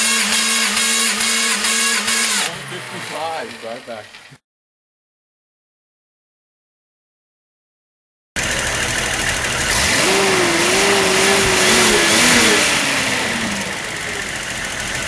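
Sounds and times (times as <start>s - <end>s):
car engine idling: 0.3s - 4.4s, 8.4s - 15.0s.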